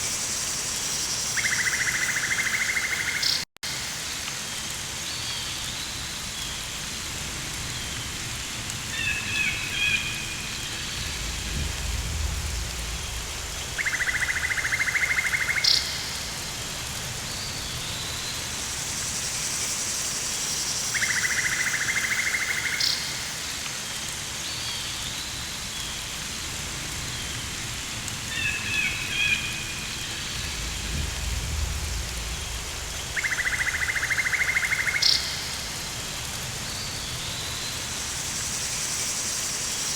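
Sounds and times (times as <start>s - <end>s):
steady rain hiss: 0.0s - 39.9s
low rumbles: 10.4s - 14.7s, 29.6s - 33.9s
rapid pulsed buzzing calls: 30.2s - 35.7s.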